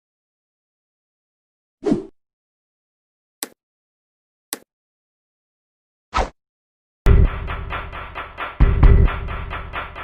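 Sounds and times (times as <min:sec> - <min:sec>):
sharp percussive hits: 0:07.1 - 0:10.0.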